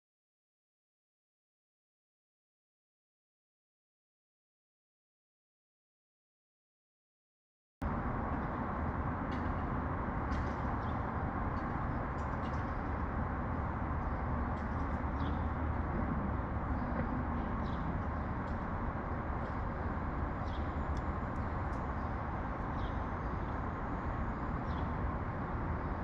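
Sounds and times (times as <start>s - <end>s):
city traffic rumble: 7.8s - 26.0s
faint sparrow chirps: 14.0s - 15.6s, 20.4s - 25.0s.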